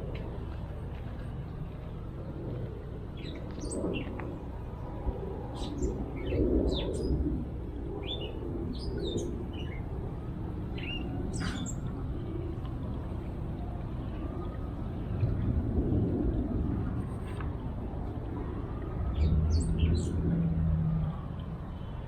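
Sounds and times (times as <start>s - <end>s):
low outdoor rumble: 0.0s - 22.0s
small birds chirping: 3.1s - 4.4s, 10.8s - 11.9s.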